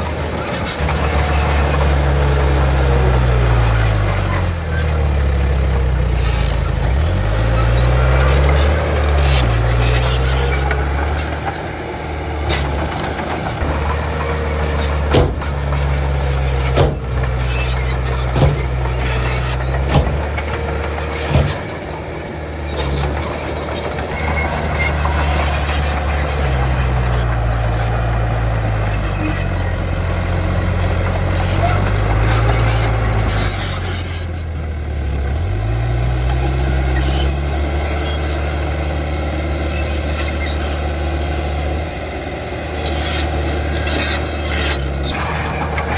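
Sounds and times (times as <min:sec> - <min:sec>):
bulldozer diesel engine under load: 0:00.0 - 0:45.9
sharp metallic clanks: 0:08.3 - 0:27.4.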